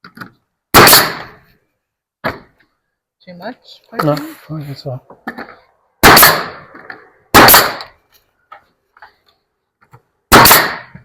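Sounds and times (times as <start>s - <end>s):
nail gun firing into wood: 0.7s - 1.4s, 6.0s - 6.6s, 7.3s - 7.9s, 10.3s - 11.0s.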